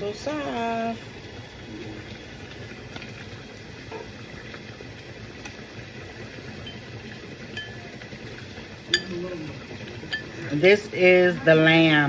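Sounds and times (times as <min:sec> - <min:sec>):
broth boiling in a pot: 0:00.0 - 0:12.0.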